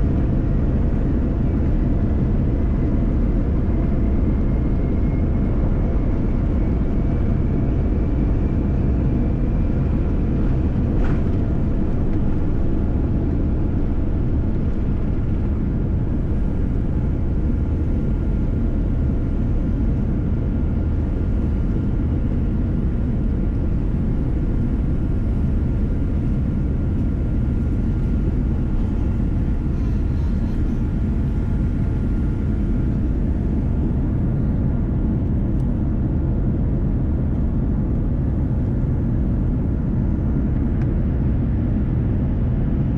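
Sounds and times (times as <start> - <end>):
aircraft engine rumble in cabin: 0.0 - 42.9.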